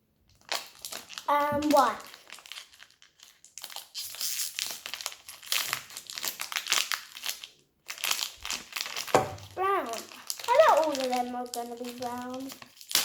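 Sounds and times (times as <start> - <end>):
crinkly packaging crackling: 0.3 - 13.0.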